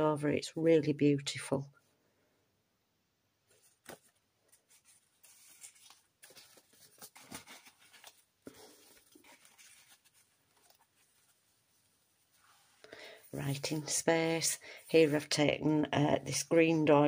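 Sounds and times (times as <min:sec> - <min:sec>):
paper pages turning: 0:03.5 - 0:15.4.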